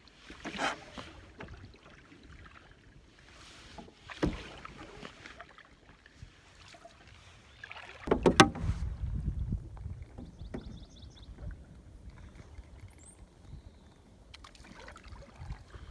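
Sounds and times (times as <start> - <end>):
paddle strokes in water: 0.0 - 15.9
knocks on canoe: 8.1 - 9.2.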